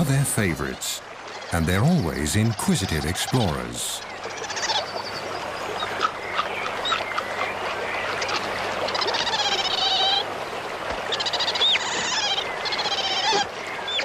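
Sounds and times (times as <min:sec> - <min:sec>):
animal wavering cries: 0:08.3 - 0:10.3, 0:11.1 - 0:13.5.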